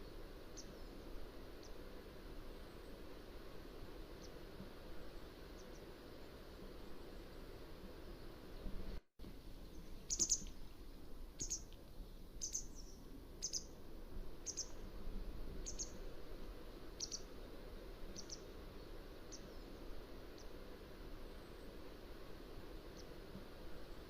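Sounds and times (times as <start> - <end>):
steady background hiss: 0.0 - 24.0
wagtail short high calls: 10.1 - 10.5.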